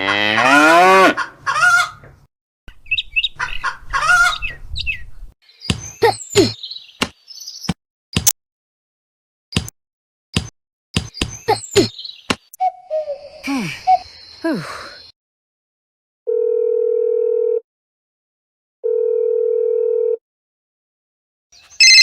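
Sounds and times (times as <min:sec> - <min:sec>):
telephone ringback tone: 0:16.3 - 0:17.6, 0:18.8 - 0:20.2, 0:21.8 - 0:22.0.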